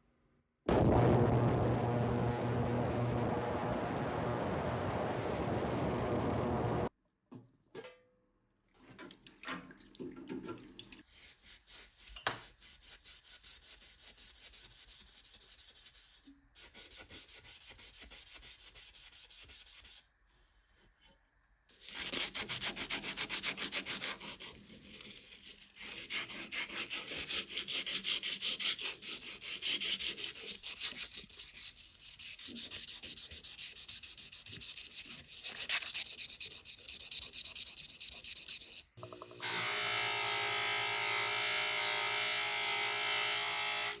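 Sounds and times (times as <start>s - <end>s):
hand sanding metal part: 26.0s - 39.0s.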